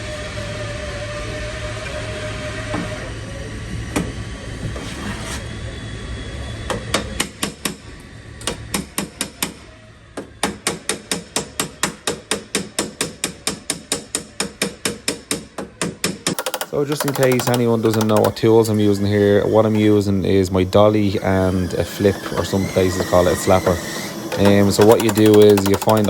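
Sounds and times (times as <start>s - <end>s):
steady background hum: 0.0s - 26.0s.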